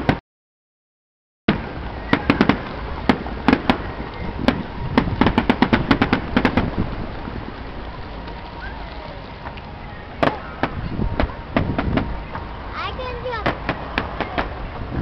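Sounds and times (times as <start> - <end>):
fireworks bangs and crackles: 1.5 - 15.0.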